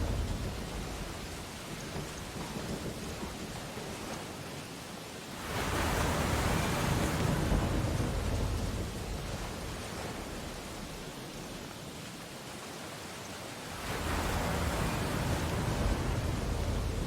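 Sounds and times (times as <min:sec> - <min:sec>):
ocean wave breaking on shore: 0:05.3 - 0:11.6, 0:12.8 - 0:17.0.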